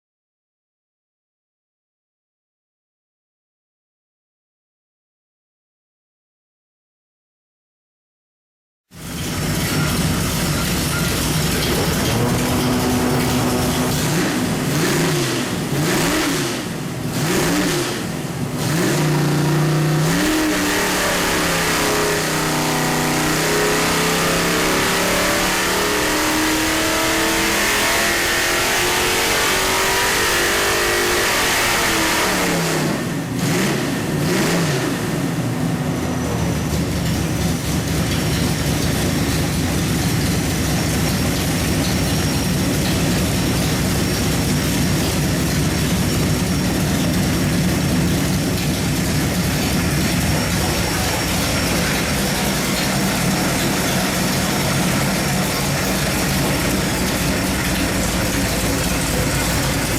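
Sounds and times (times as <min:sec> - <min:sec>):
engine revving and idling: 0:09.0 - 0:59.9.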